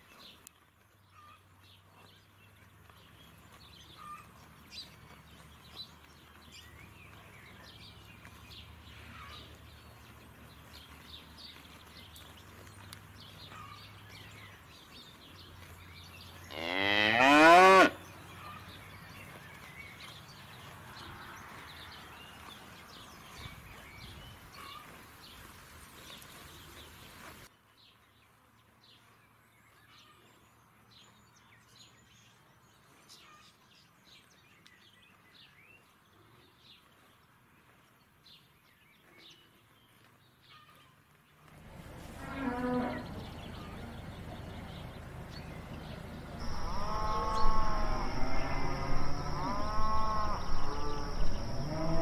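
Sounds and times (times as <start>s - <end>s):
cow mooing: 16.5s - 18.0s, 41.8s - 43.9s, 46.4s - 52.0s.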